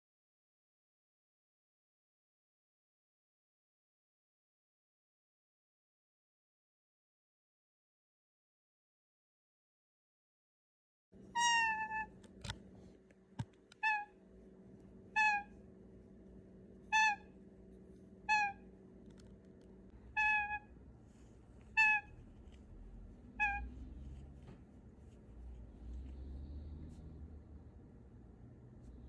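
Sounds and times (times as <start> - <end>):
parrot calling: 11.3 - 12.2, 13.8 - 14.2, 15.1 - 15.6, 16.9 - 17.4, 18.2 - 18.7, 20.0 - 20.8, 21.6 - 22.3, 23.3 - 23.8.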